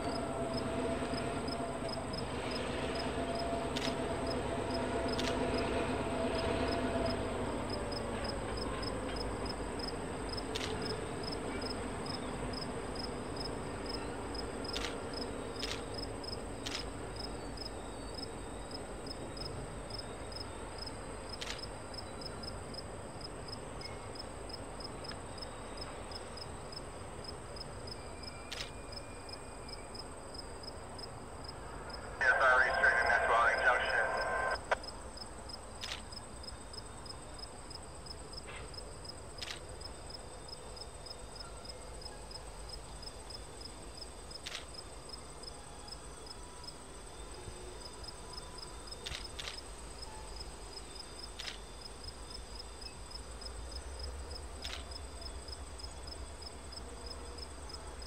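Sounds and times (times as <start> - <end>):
train wheels rumbling on rails: 0.0 - 19.8
insects chirping: 7.5 - 58.0
locomotive engine hum: 31.6 - 34.8.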